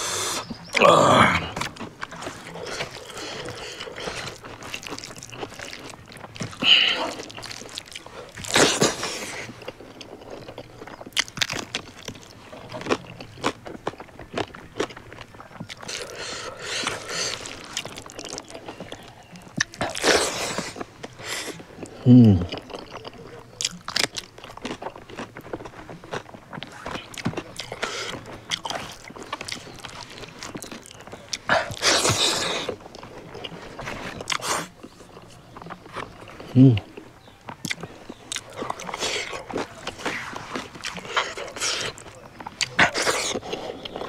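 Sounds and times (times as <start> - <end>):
person chewing food: 0.0 - 44.0.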